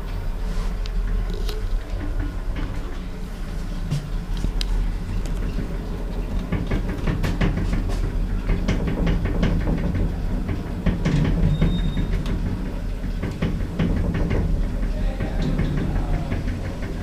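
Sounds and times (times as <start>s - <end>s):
lift car rumble and hum: 0.0s - 17.0s
clicks and rattles: 0.8s - 3.2s, 3.9s - 17.0s.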